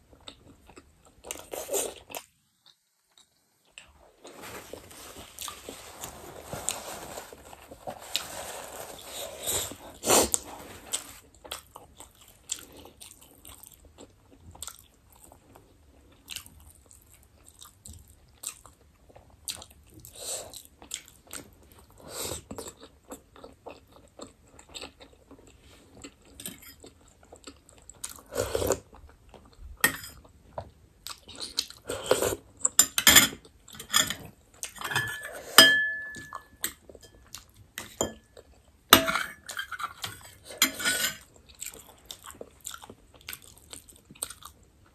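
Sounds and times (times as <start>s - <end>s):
wet chewing and smacking: 11.0s - 31.9s, 41.2s - 44.9s.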